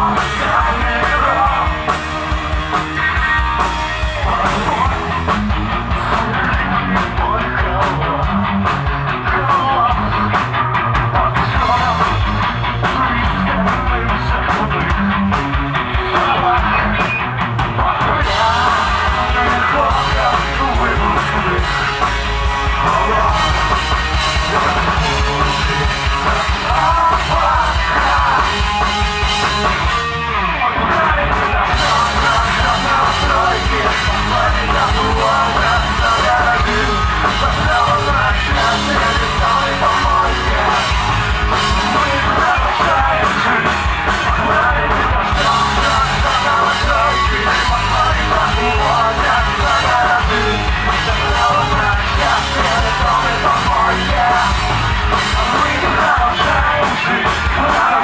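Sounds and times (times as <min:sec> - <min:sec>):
shouted singing: 0:00.0 - 0:05.2, 0:17.8 - 0:58.0
live rock band playing: 0:00.0 - 0:58.0.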